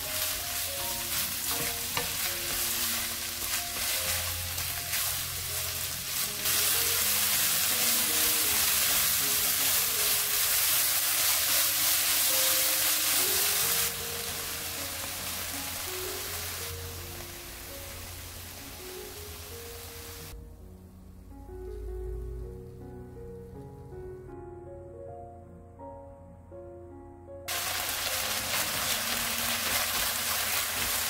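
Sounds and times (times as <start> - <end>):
stirring scrape and rustle: 0.0 - 7.2
vegetables sizzling in hot oil: 0.0 - 20.4, 27.5 - 31.0.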